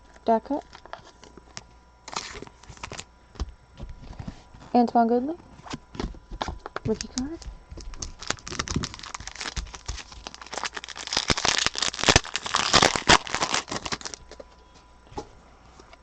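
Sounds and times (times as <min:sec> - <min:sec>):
cards being handled: 0:00.7 - 0:03.0, 0:05.6 - 0:14.6
foil wrapper tearing and crinkling: 0:02.1 - 0:03.1, 0:07.0 - 0:14.4.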